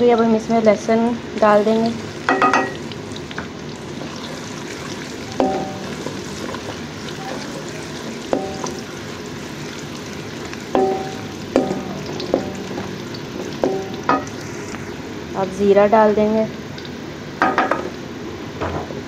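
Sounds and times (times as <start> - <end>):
onions and garlic sizzling: 0.0 - 19.0
spoon knocking ringing pan: 2.3 - 2.8, 5.3 - 6.1, 8.3 - 8.9, 10.7 - 12.8, 13.6 - 14.4.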